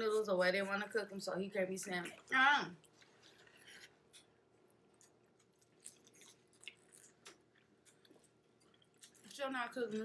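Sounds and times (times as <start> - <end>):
soft chewing mouth clicks: 2.0 - 10.0.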